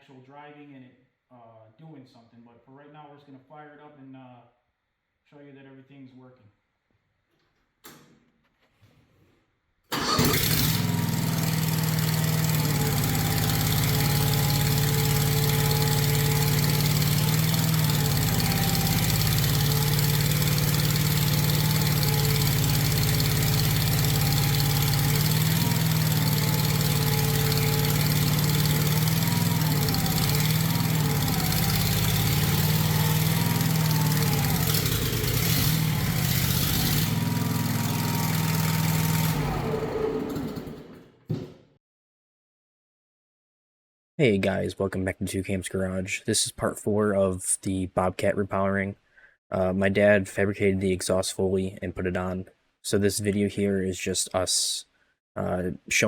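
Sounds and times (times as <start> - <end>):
engine starting and running: 9.9 - 41.5.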